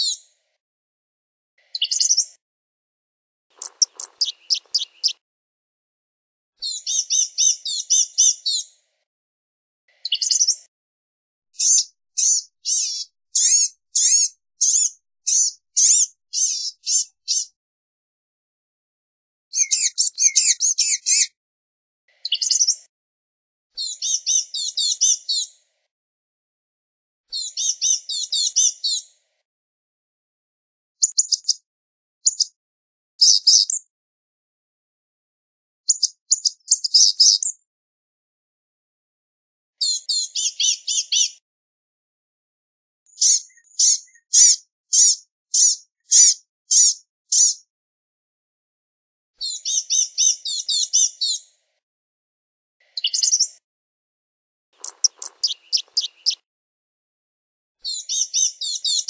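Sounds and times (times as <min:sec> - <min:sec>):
gnatcatcher calling high chips: 0:03.6 - 0:05.1, 0:54.8 - 0:56.4
bird high squeaky notes: 0:03.6 - 0:05.2, 0:54.8 - 0:56.4.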